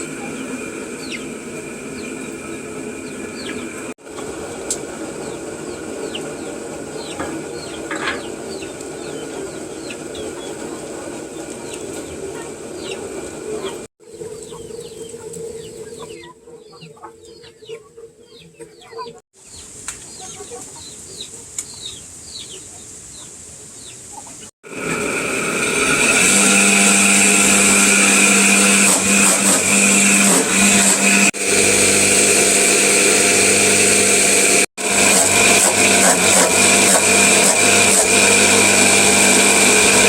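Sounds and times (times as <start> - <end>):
chickens calling: 0.0 - 24.5.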